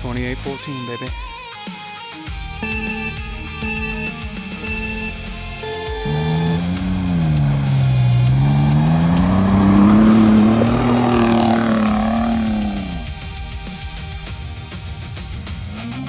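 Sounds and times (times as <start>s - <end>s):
truck engine revving: 2.5s - 13.3s.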